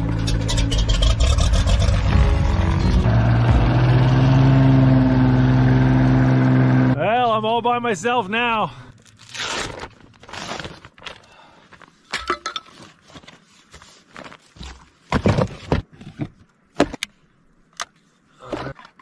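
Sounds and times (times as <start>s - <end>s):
handling rustling and scraping: 8.9s - 19.0s.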